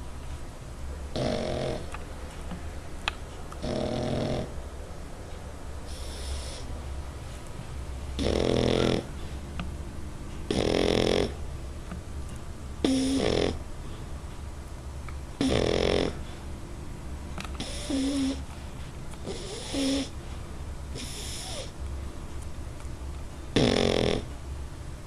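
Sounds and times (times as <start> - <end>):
dog snoring: 1.1 - 1.9, 3.6 - 4.6, 5.9 - 6.7, 8.2 - 9.1, 10.4 - 11.4, 12.8 - 13.6, 15.4 - 16.4, 17.6 - 18.4, 19.2 - 20.2, 20.9 - 21.7, 23.5 - 24.3.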